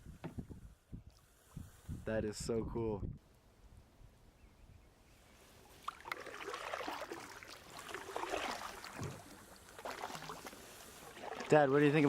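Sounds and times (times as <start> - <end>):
water splashing against a kayak: 5.6 - 12.0.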